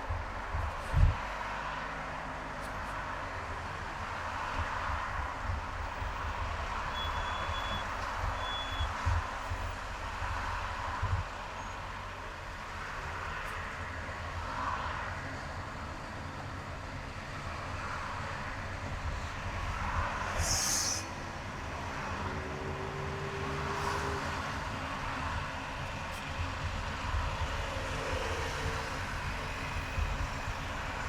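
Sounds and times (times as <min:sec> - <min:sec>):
car engine and road rumble: 0:00.0 - 0:31.0
brief sharp hiss: 0:20.3 - 0:21.2.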